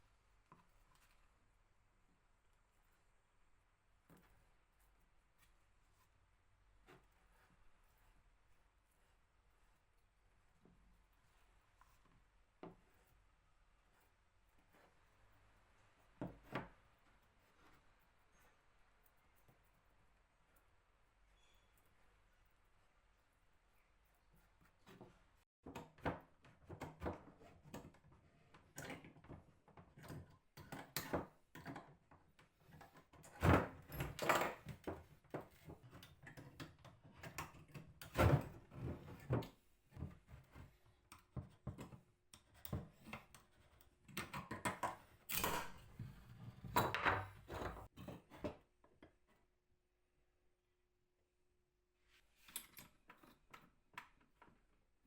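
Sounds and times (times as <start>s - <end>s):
knocks and clatter on a table: 16.2s - 16.8s, 24.8s - 49.2s.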